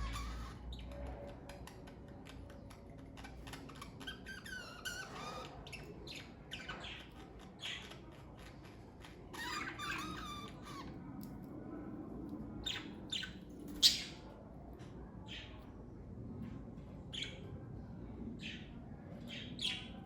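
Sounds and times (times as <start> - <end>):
budgerigars chirping: 0.0 - 0.9.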